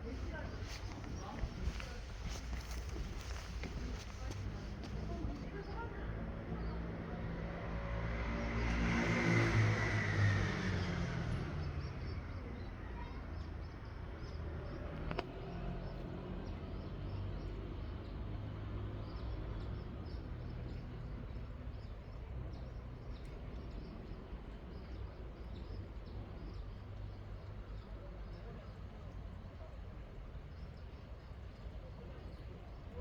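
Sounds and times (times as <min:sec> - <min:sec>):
steady low rumble: 0:00.0 - 0:05.6
small birds chirping: 0:00.0 - 0:07.4, 0:09.4 - 0:33.0
passing vehicle: 0:00.0 - 0:27.7.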